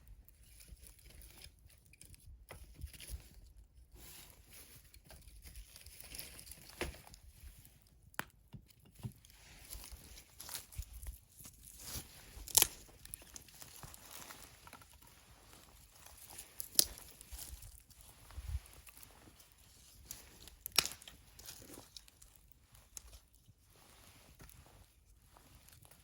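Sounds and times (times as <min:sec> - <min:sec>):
wood fire crackling: 0:12.4 - 0:14.9, 0:16.2 - 0:18.0, 0:20.0 - 0:22.2.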